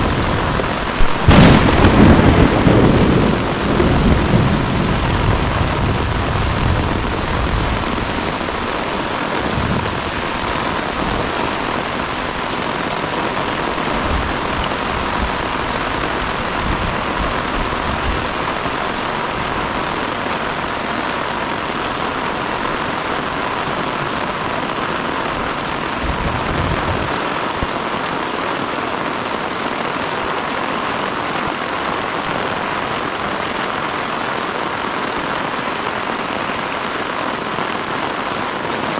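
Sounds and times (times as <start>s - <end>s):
heavy rain falling: 0.0s - 38.9s
low rumble of thunder: 1.0s - 19.0s.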